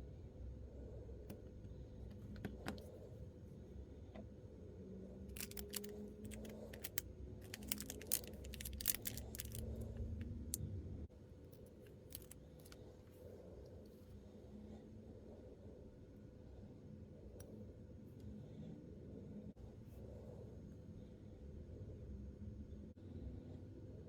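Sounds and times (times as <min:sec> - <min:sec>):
plastic pieces and packaging handled: 0:05.3 - 0:10.2, 0:12.0 - 0:12.8.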